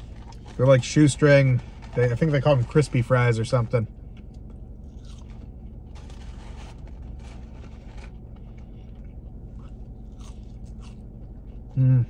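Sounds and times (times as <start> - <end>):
crunching fries: 0.0 - 12.0
steady low hum: 0.0 - 12.0
rustling: 5.0 - 9.8.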